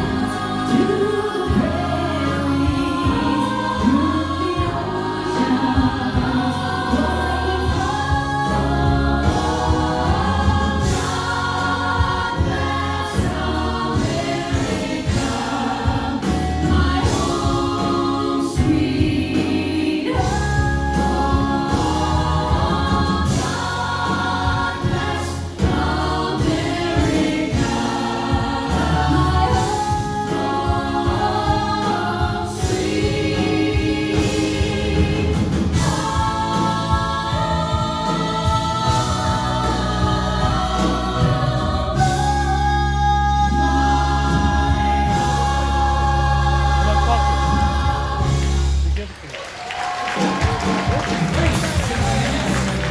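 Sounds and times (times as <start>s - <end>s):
choir singing with instruments: 0.0s - 52.9s.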